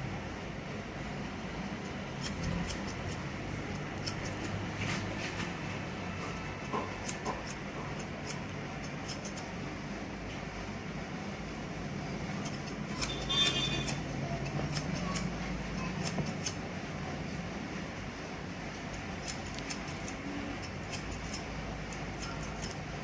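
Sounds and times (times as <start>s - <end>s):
scissors snipping hair: 1.8s - 4.6s, 6.7s - 9.5s, 12.4s - 16.6s, 18.9s - 22.9s.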